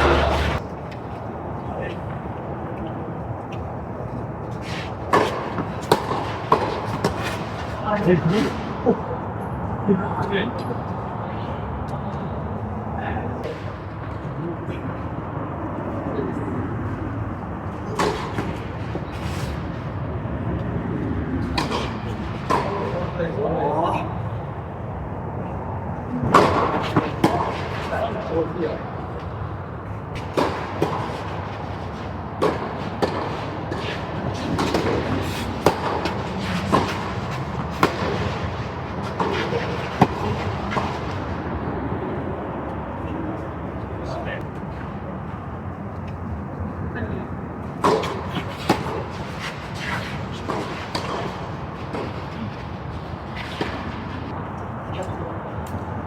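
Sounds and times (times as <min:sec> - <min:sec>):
outdoor background noise: 0:00.0 - 0:56.0
tennis ball hits and bounces: 0:05.1 - 0:07.8, 0:17.6 - 0:19.7, 0:21.4 - 0:23.1, 0:26.2 - 0:28.4, 0:30.2 - 0:41.4, 0:47.6 - 0:54.2.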